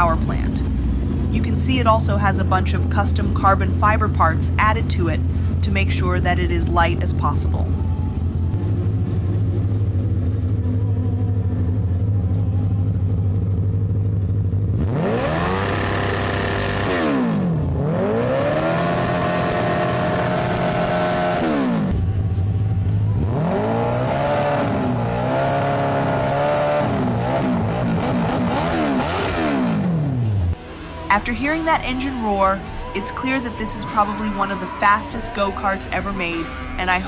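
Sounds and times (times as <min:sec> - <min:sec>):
go-kart engine idling and revving: 0:00.0 - 0:30.7.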